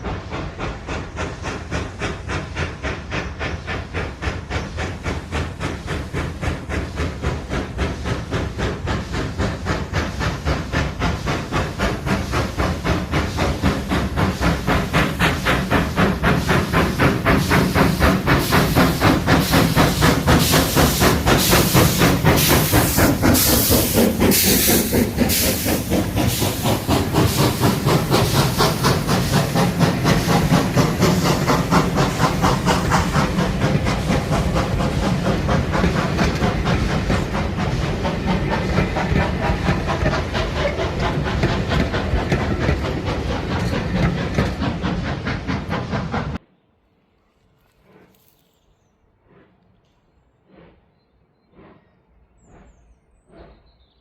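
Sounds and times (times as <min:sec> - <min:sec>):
steam locomotive hissing steam: 0:00.0 - 0:46.4
steam locomotive chuffing beat: 0:00.0 - 0:46.5, 0:50.3 - 0:54.0.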